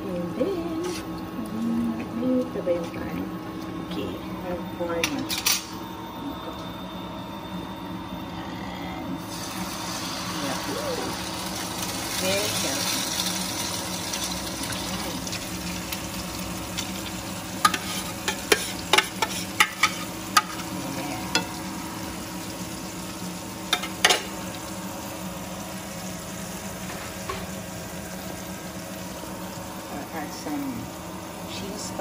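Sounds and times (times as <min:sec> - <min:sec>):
omelette sizzling in a pan: 0:09.2 - 0:32.0
utensil tapping and scraping pan: 0:17.6 - 0:20.6.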